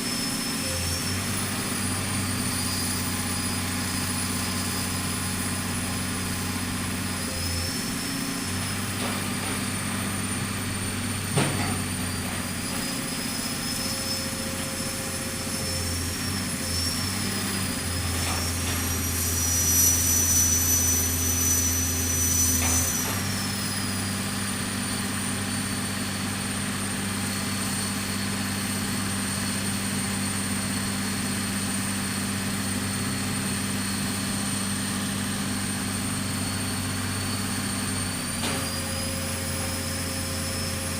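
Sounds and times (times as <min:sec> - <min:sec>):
pile-driving machine engine running: 0:00.2 - 0:40.9.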